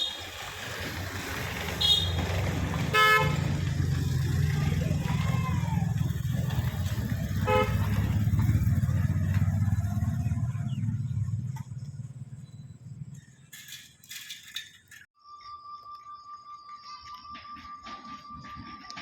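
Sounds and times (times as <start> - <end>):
electric train passing: 0.0 - 11.5, 15.2 - 19.0
train horn toot: 1.6 - 4.2, 7.3 - 8.3.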